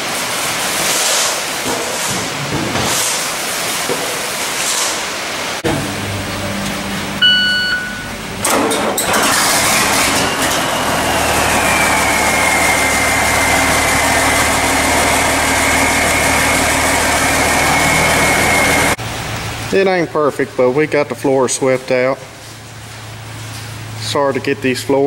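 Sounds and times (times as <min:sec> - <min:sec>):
high whine: 0:05.6 - 0:08.6, 0:09.9 - 0:19.7
short electronic beep: 0:07.2 - 0:08.2
engine starting and idling: 0:07.8 - 0:19.0.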